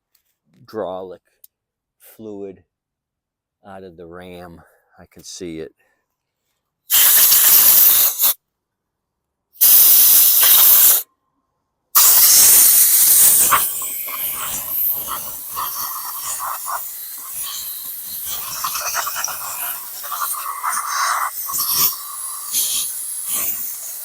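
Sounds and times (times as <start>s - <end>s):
loud hissing bursts: 6.9s - 8.4s, 9.6s - 11.0s, 12.0s - 24.0s.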